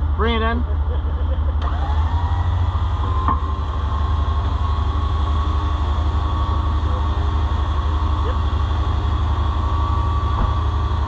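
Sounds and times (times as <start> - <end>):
truck engine idling: 0.0 - 11.0
winch motor whining: 0.0 - 11.0.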